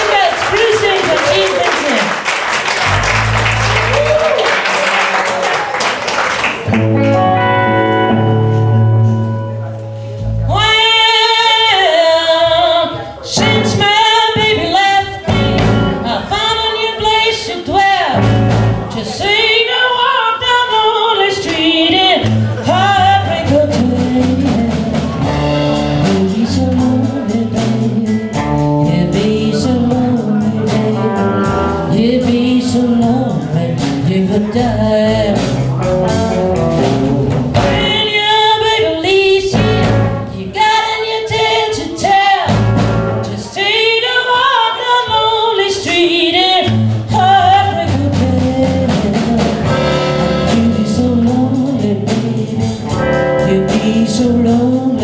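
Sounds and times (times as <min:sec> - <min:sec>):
applause: 0:00.0 - 0:07.2
live band playing: 0:00.0 - 0:55.0
person singing with vibrato: 0:10.3 - 0:55.0.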